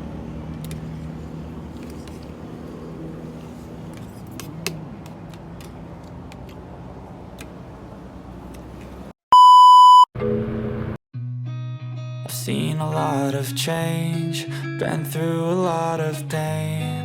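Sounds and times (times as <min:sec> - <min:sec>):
road noise: 0:00.0 - 0:09.2
vehicle engine hum: 0:00.0 - 0:09.2
high electronic beep: 0:09.3 - 0:10.4.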